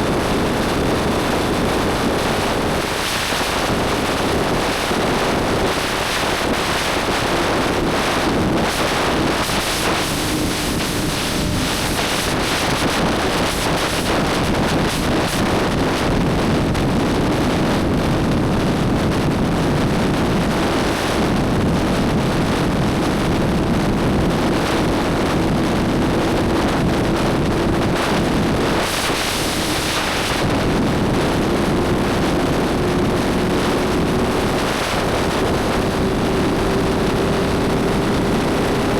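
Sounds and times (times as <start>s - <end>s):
wind rushing over microphone: 0.0s - 38.9s
motorcycle engine cruising: 31.3s - 38.9s.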